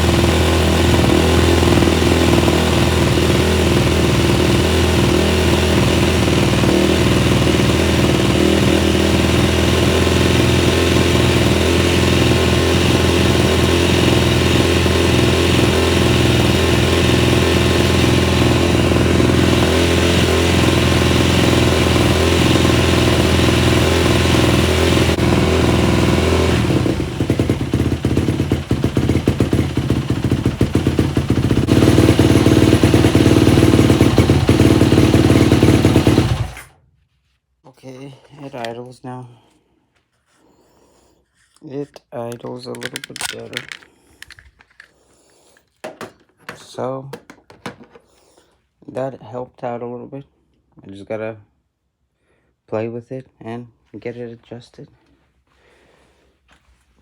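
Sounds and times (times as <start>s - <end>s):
motorcycle engine idling: 0.0s - 36.7s.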